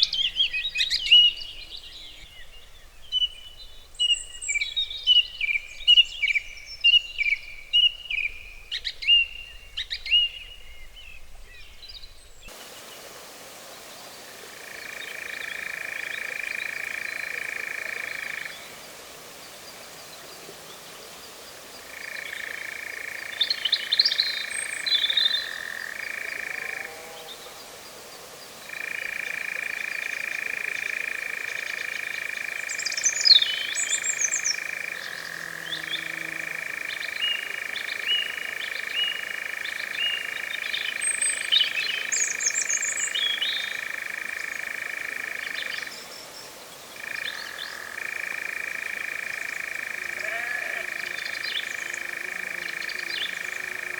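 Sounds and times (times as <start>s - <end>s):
birds chirping and twittering: 0.0s - 53.9s
bird chirping: 31.6s - 53.9s.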